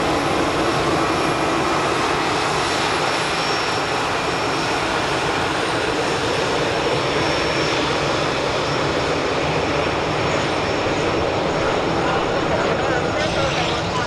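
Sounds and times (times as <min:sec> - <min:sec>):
jet engines running: 0:00.0 - 0:14.0
faint high whine: 0:10.2 - 0:14.0.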